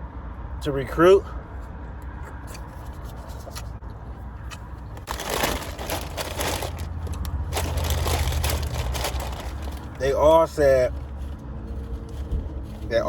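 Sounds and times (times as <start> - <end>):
crinkling handling noise: 2.4 - 13.0.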